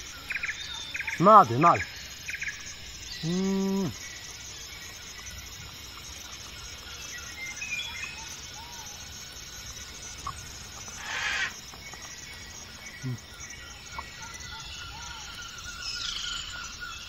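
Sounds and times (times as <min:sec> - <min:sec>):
faint bird chirps: 0:00.0 - 0:17.0
insects buzzing in trills: 0:00.0 - 0:17.0
man's voice holding a note: 0:01.2 - 0:01.9.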